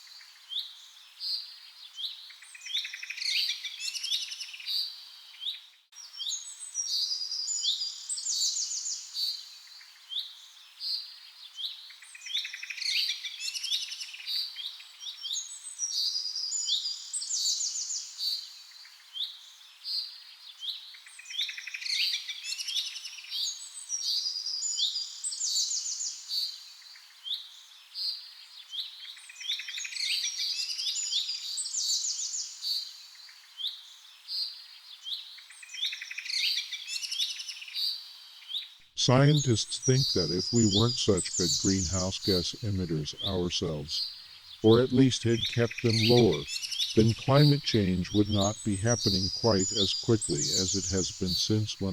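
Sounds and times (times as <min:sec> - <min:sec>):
birds chirping and trilling: 0:34.8 - 0:51.9.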